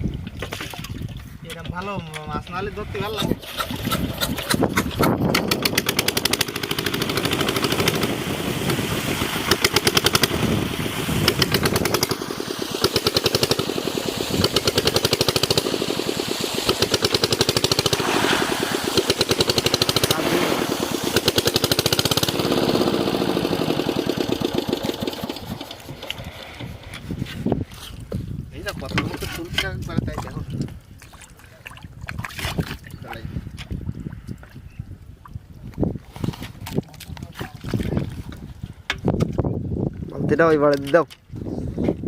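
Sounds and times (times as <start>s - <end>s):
small engine knocking: 3.4s - 8.8s, 9.4s - 10.5s, 11.2s - 26.7s.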